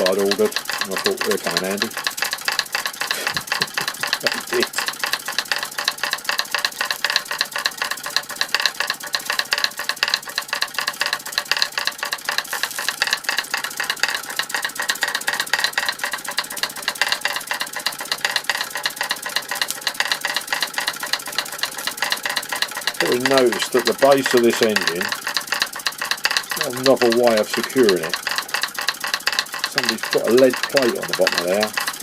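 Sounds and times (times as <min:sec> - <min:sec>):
toy steam engine clattering: 0:00.0 - 0:32.0.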